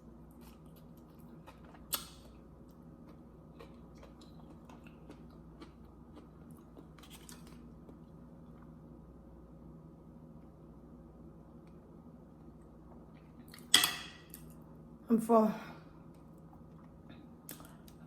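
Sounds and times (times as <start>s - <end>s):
faint chewing mouth sounds: 0.3s - 8.7s, 16.1s - 18.0s.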